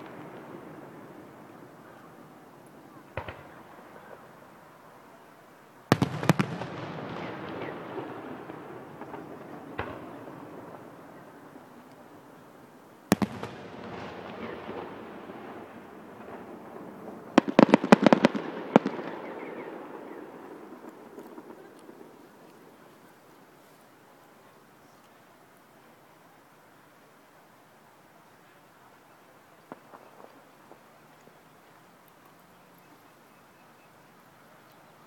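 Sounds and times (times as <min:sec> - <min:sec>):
firework shells bursting: 0:05.9 - 0:10.9, 0:13.1 - 0:16.8.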